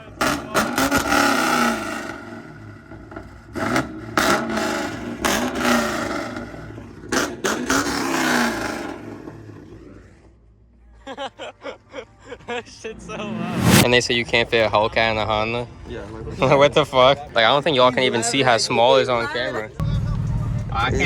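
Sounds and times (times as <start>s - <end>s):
loud engine revving: 0.2s - 2.5s, 3.6s - 6.5s, 12.9s - 13.9s.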